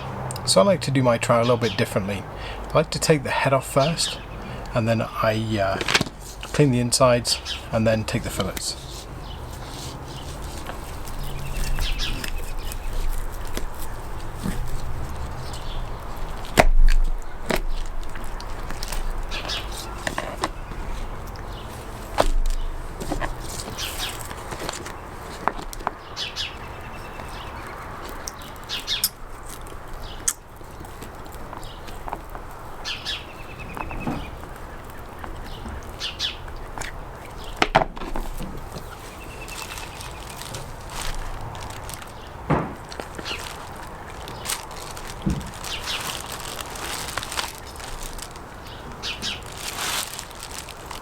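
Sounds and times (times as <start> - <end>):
small birds chirping: 0.0 - 51.0
light clicks and scraping: 7.3 - 26.0
sharp knocks: 42.5 - 42.9.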